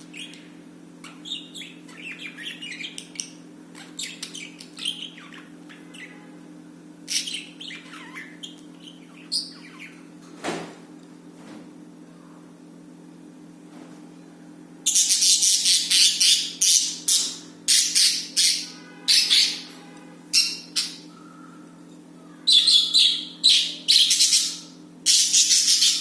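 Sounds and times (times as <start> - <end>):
budgerigars chattering and squawking: 7.1 - 10.1, 14.9 - 19.7, 20.4 - 21.1, 22.4 - 26.0.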